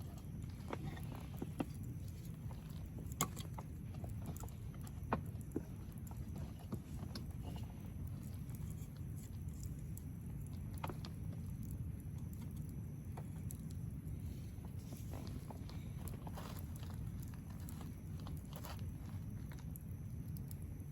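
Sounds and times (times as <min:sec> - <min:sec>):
wood fire crackling and popping: 0:00.0 - 0:20.9.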